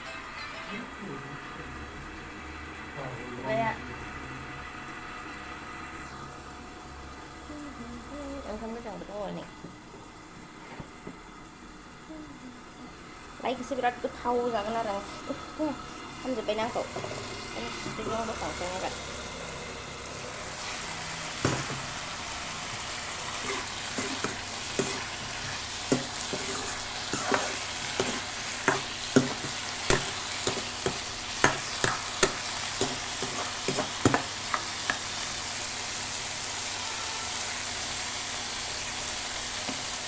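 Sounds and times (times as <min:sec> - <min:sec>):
food sizzling in a pan: 0:10.4 - 0:40.0
spatula scraping a pan: 0:22.8 - 0:35.3.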